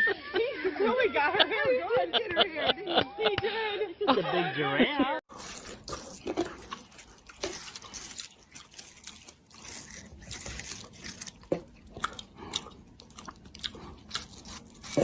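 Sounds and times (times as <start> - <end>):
crunchy chewing: 5.3 - 15.0.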